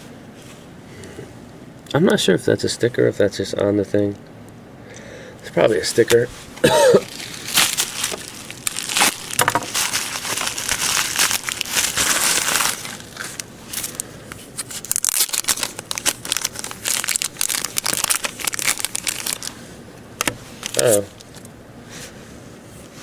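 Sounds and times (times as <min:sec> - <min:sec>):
packaging crinkling and rustling: 0:06.0 - 0:19.6, 0:20.2 - 0:21.5.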